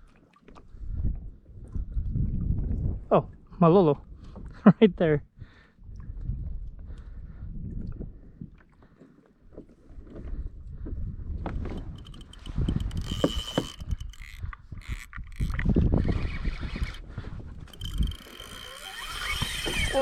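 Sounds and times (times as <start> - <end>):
wind buffeting microphone: 0.7 - 3.1, 5.8 - 8.5, 10.2 - 20.0
water sloshing against kayak: 8.2 - 20.0.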